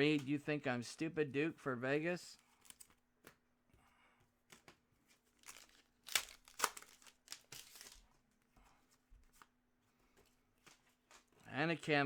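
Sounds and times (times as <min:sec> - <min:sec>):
plastic packaging crinkling: 0:05.3 - 0:08.2.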